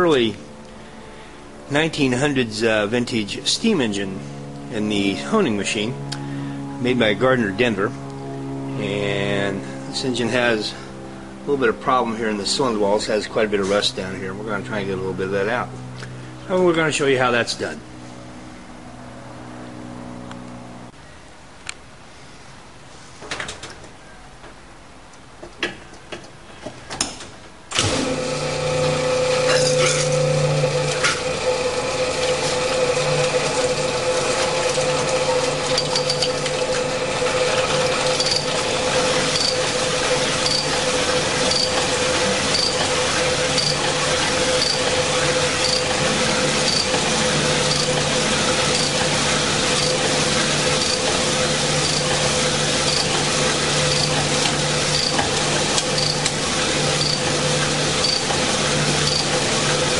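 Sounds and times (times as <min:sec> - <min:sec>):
honing machine grinding: 0:27.8 - 0:59.9.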